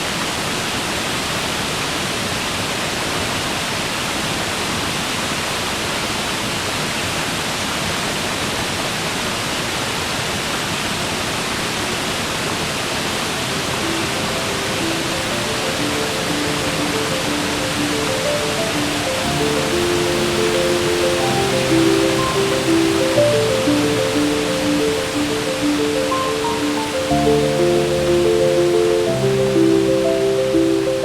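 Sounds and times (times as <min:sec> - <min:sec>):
waterfall roaring: 0:00.0 - 0:31.0
soft held musical notes: 0:13.4 - 0:31.0.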